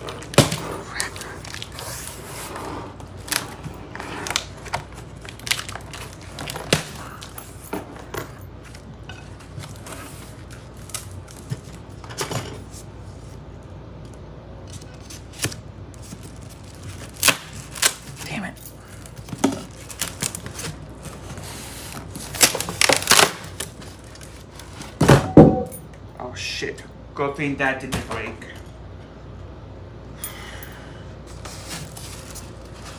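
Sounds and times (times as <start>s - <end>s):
packaging crinkling and tearing: 0.0s - 2.3s, 2.9s - 7.4s, 8.6s - 12.0s, 14.6s - 18.3s, 19.0s - 25.0s.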